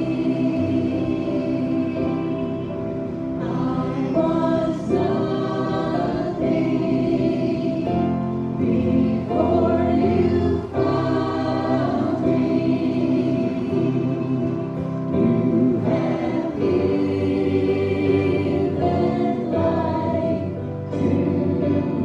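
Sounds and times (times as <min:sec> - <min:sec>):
group singing a hymn: 0:00.0 - 0:22.0
musical accompaniment: 0:00.0 - 0:22.0.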